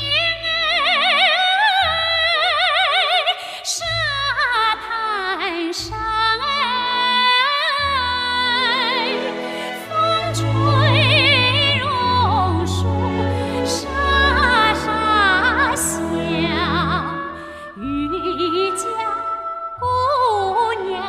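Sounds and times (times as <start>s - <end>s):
woman singing with vibrato: 0.0s - 21.0s
orchestral backing with pulsing bass: 5.8s - 21.0s.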